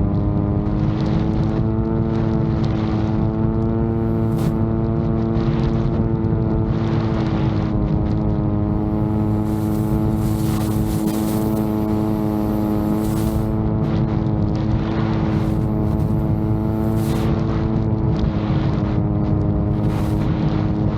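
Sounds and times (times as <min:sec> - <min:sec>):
drone propellers humming: 0:00.9 - 0:06.2, 0:07.0 - 0:20.9
gusty wind hiss: 0:03.8 - 0:04.7, 0:08.6 - 0:14.0, 0:15.1 - 0:17.7, 0:19.7 - 0:20.8.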